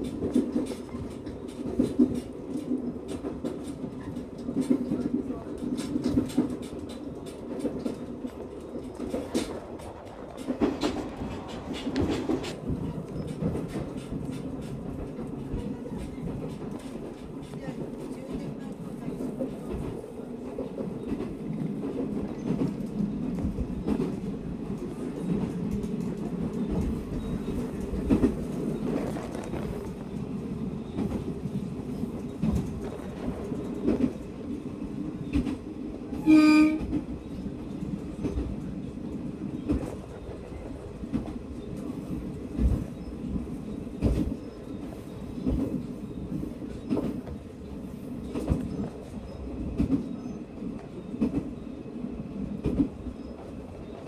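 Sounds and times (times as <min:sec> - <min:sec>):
train running rumble: 0:00.0 - 0:54.0
train horn blast: 0:36.2 - 0:37.0.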